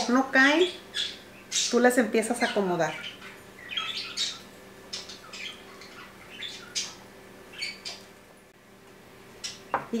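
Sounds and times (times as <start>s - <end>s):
faint steady hum: 0.0s - 10.0s
bird squawking and chirping: 0.6s - 8.1s.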